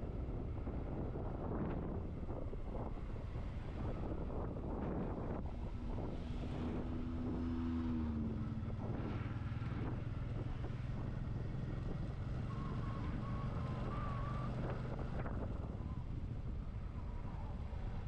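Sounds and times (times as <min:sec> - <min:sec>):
motorcycle engine hum: 0:00.0 - 0:18.0
wind rush on microphone: 0:00.0 - 0:18.0.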